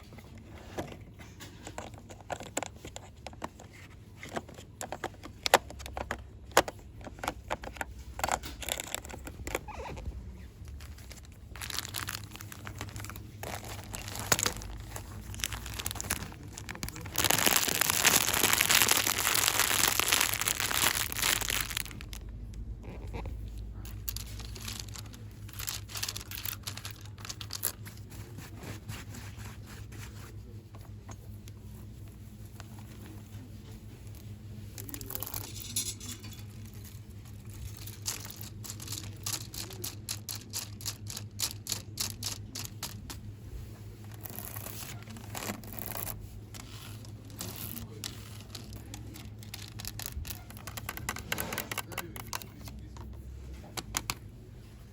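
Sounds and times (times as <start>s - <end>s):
packaging rustling and crinkling: 7.6s - 28.8s, 36.5s - 43.2s, 43.9s - 52.7s.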